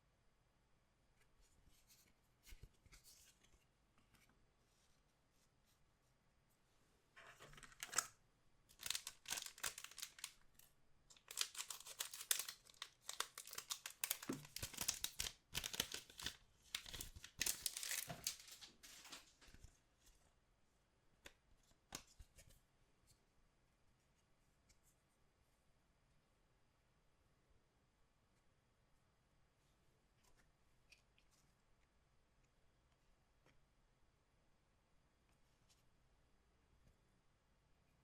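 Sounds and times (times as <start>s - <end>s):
wrapper tearing and crinkling: 8.7s - 10.4s, 11.1s - 19.3s.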